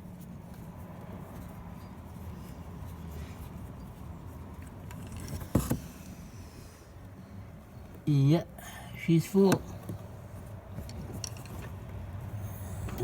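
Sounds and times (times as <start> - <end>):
low steady background noise: 0.0 - 13.0.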